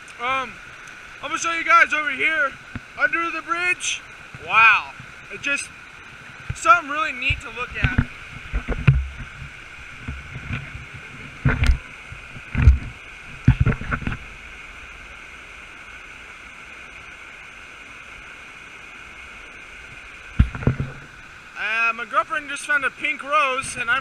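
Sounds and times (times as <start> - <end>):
fast-flowing creek rushing: 0.0 - 24.0
short low thumps: 7.2 - 14.3.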